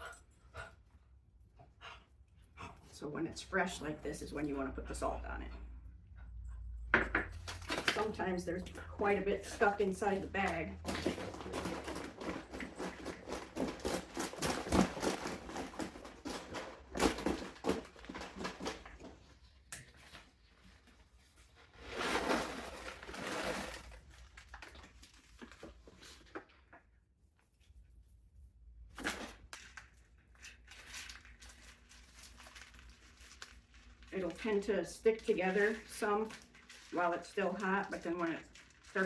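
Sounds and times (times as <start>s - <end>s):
caramel corn clattering: 7.0s - 20.1s, 21.7s - 25.8s, 30.4s - 39.0s
bag rustling and crinkling: 7.4s - 26.4s, 30.5s - 39.0s.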